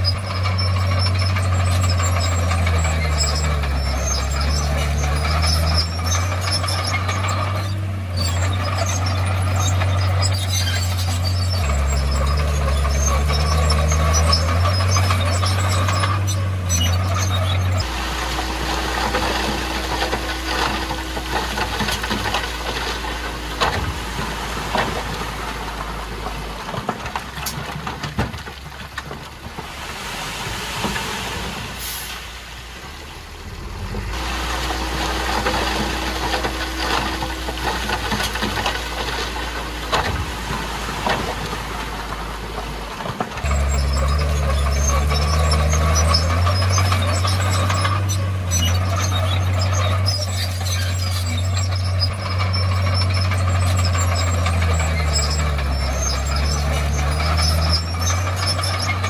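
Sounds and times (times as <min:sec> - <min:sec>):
bulldozer engine running: 0:00.0 - 0:59.0.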